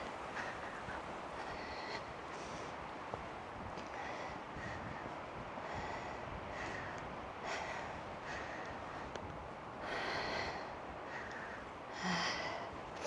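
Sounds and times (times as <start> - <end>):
person breathing hard: 9.8 - 12.7.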